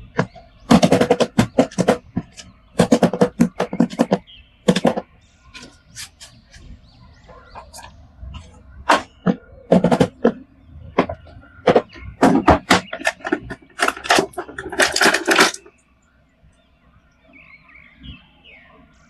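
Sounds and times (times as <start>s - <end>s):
hard plastic clicking and clattering: 0.0s - 6.6s, 7.4s - 15.8s.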